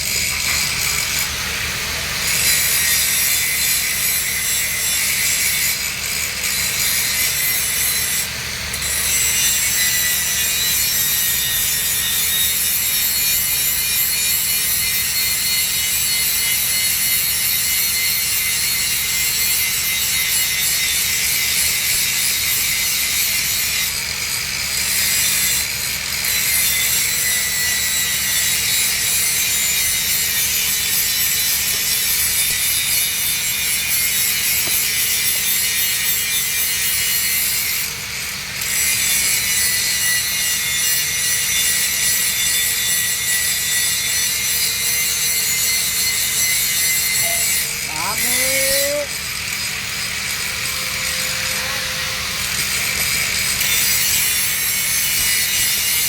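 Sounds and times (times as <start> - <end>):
arc welding crackling hiss: 46.4 - 56.0.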